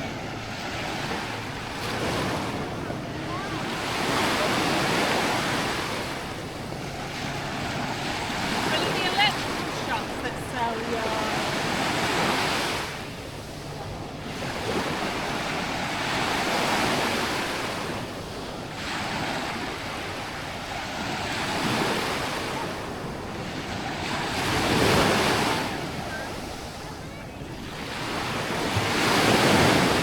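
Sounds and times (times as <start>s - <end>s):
small waves washing on sand: 0.0s - 30.0s.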